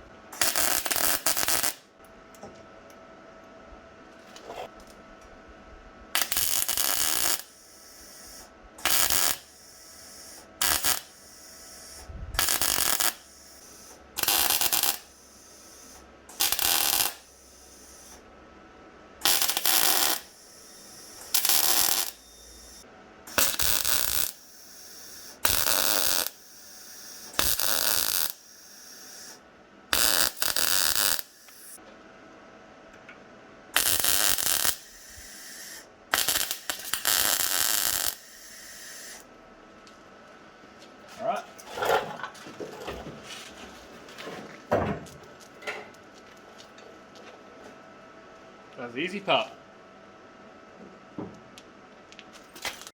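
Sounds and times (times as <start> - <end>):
welder crackling bursts: 0.4 - 1.9, 6.2 - 18.2, 19.2 - 31.8, 33.8 - 39.3, 52.4 - 52.9.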